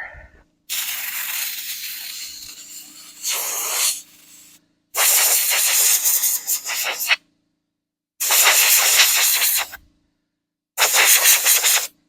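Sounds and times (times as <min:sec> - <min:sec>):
compressed air blow gun hissing: 0:00.7 - 0:07.2, 0:08.2 - 0:09.8, 0:10.8 - 0:11.9.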